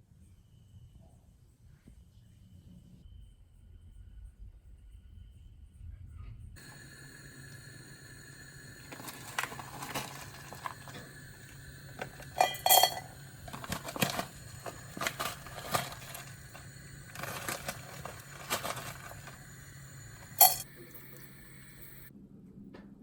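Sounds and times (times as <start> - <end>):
faint steady hum: 3.1 - 22.9
clinks and knocks of hard objects: 6.6 - 21.3.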